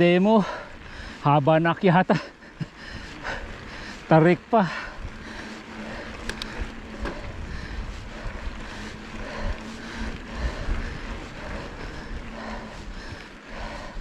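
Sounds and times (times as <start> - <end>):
faint steady hum: 2.2 - 14.0
wind buffeting microphone: 4.9 - 14.0
sharp ticks: 5.9 - 6.7.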